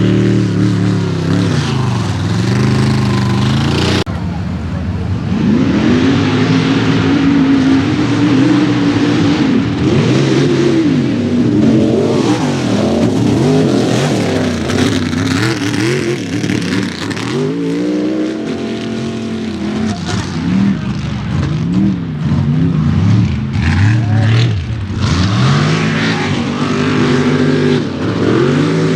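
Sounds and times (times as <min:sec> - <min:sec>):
truck engine revving hard: 0:00.0 - 0:04.1, 0:05.2 - 0:28.9.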